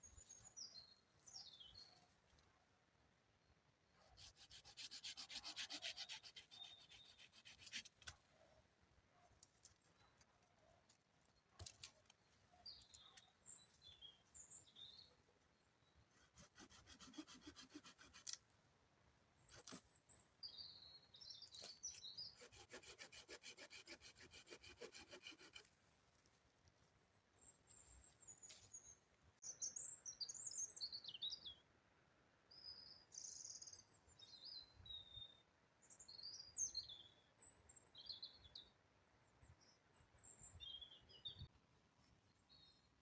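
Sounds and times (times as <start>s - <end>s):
short bird chirps: 4.0s - 7.9s
scraping strokes on wood: 4.2s - 8.0s, 16.2s - 18.4s, 22.4s - 25.7s.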